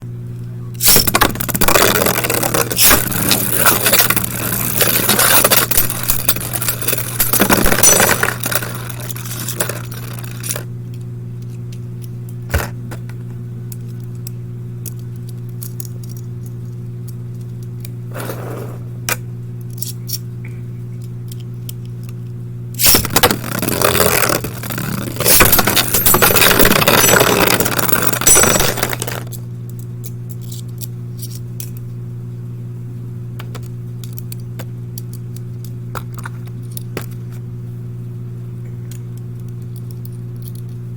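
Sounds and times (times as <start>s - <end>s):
steady low hum: 0.0s - 40.9s
spinning tops clashing: 0.8s - 10.7s, 22.8s - 29.4s.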